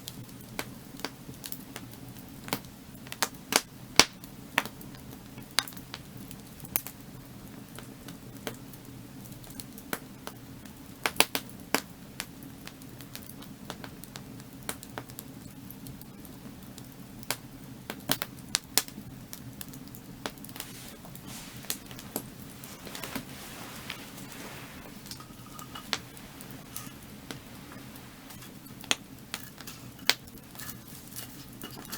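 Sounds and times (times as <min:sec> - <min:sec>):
firewood crackling and popping: 0:00.0 - 0:31.9
low background rush: 0:20.2 - 0:31.9.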